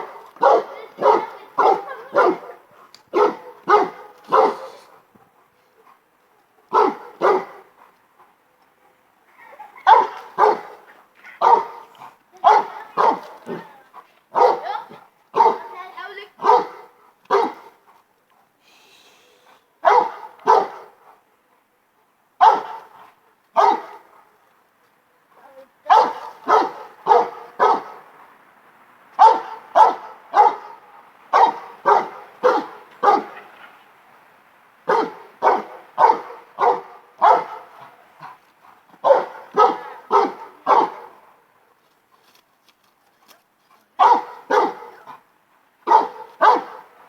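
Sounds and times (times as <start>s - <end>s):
dog barking: 0.0s - 4.9s, 6.7s - 7.7s, 9.8s - 13.7s, 14.3s - 15.8s, 16.4s - 17.8s, 19.8s - 21.0s, 22.4s - 23.0s, 23.6s - 24.2s, 25.9s - 28.0s, 29.2s - 33.5s, 34.9s - 38.0s, 39.0s - 41.2s, 44.0s - 45.2s, 45.8s - 47.0s.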